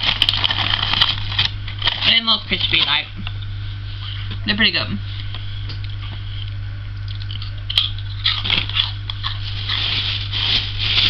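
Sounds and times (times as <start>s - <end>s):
crunching crispy snack: 0.0s - 2.1s, 7.1s - 11.0s.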